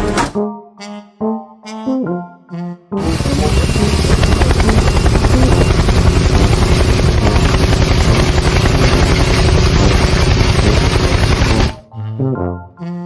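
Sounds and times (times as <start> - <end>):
engine-driven machine chopping: 0.0 - 0.4, 3.0 - 11.8.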